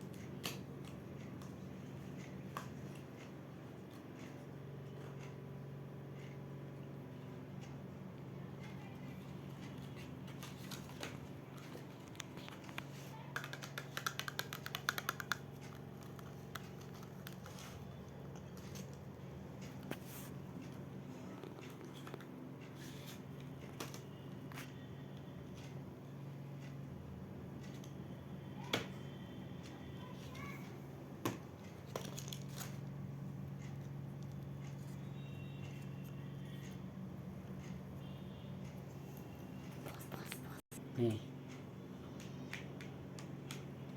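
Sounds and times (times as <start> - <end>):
small sharp clicks and taps: 11.0 - 17.6.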